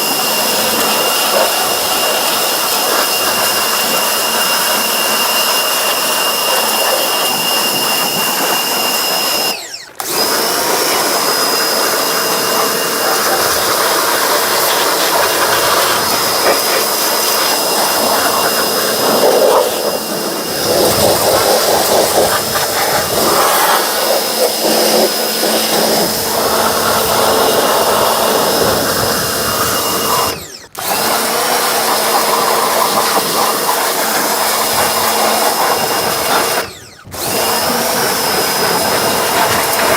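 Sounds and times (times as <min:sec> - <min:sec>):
pressure washer motor whine: 0:00.0 - 0:39.9
water spray hissing: 0:10.6 - 0:30.3.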